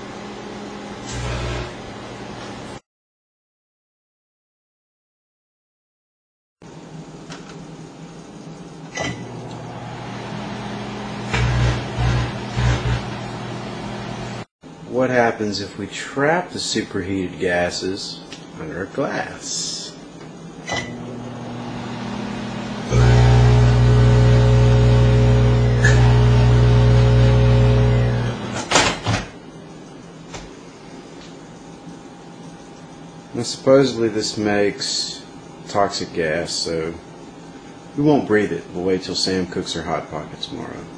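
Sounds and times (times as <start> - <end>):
microwave oven humming: 0.0 - 2.8, 6.7 - 14.4, 19.7 - 33.9
plasma buzzing and crackling: 11.2 - 13.6, 21.0 - 29.0.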